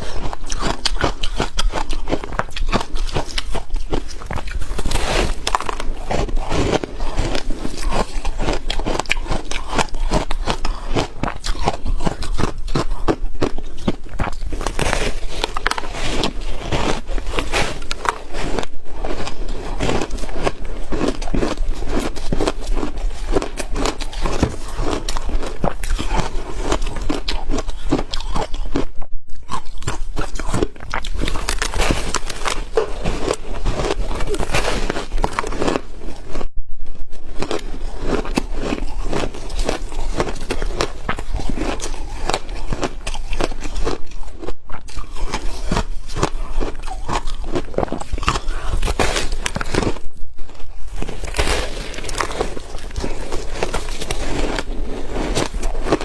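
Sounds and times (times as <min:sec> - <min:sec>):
ice being chewed: 0:00.0 - 0:56.0.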